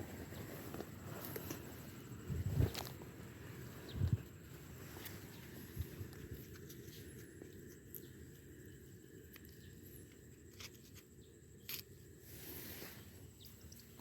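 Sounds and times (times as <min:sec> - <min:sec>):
faint rustling: 0:00.0 - 0:08.0.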